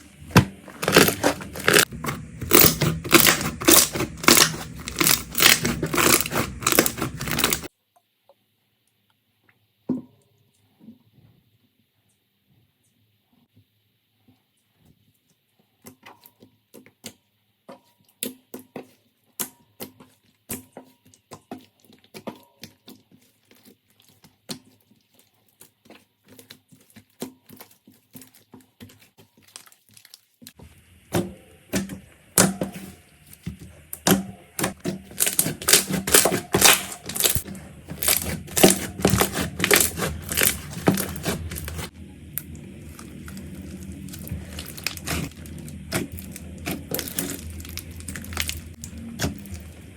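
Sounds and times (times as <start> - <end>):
steady low hum: 30.6 - 49.9
slime clicking and popping: 33.9 - 37.4, 38.0 - 41.6.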